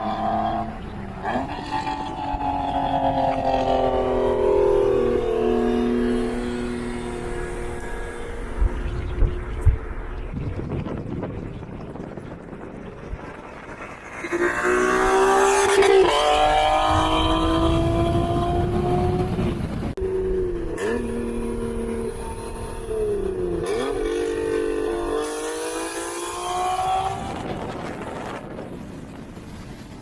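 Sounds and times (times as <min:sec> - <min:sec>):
car engine accelerating hard: 0:14.0 - 0:20.0.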